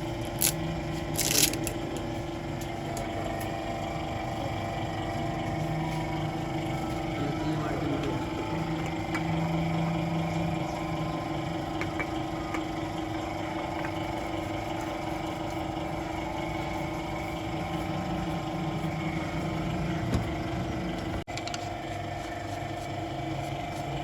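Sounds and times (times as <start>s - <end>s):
car engine idling: 2.7s - 21.3s.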